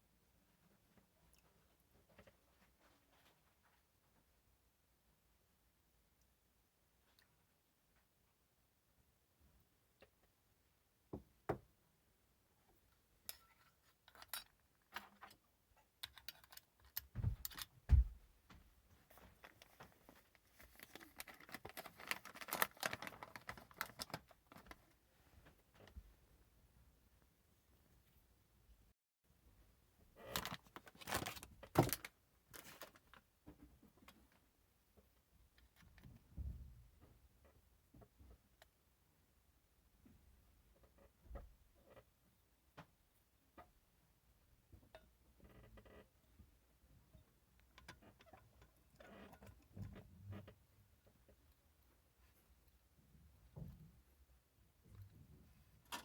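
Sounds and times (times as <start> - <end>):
metal parts clicking and clinking: 13.3 - 14.6, 16.0 - 17.7
heavy thumps: 17.1 - 18.3.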